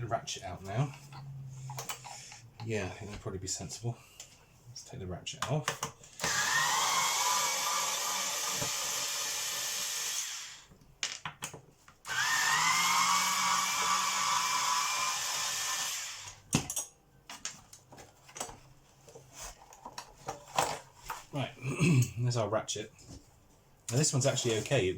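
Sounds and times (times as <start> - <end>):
power screwdriver whining: 6.2 - 10.7, 12.1 - 16.4.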